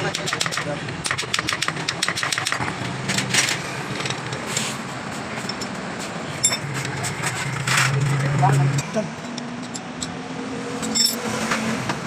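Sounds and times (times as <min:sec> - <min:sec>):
metal tools clattering: 0:06.4 - 0:08.2, 0:10.8 - 0:11.2.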